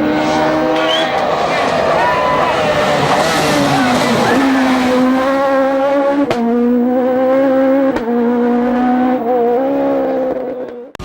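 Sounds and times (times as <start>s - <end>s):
engine cracks: 0.0s - 5.6s
car engine at high revs: 0.0s - 11.0s.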